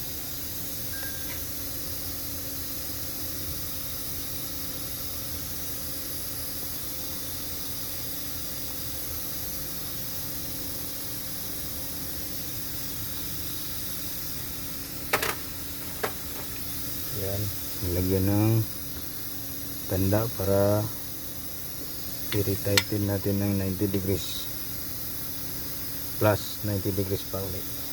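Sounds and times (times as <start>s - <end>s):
faint hum: 11.4s - 27.9s
background hiss: 12.0s - 27.9s.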